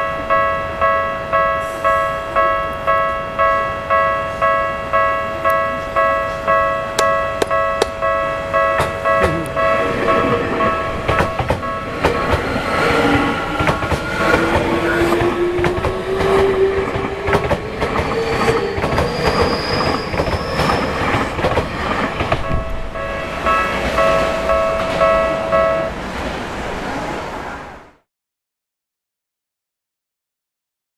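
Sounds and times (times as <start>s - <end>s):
level crossing alarm ringing: 0.0s - 26.0s
train wheels clacking over rail joints: 8.8s - 9.8s, 10.6s - 22.8s.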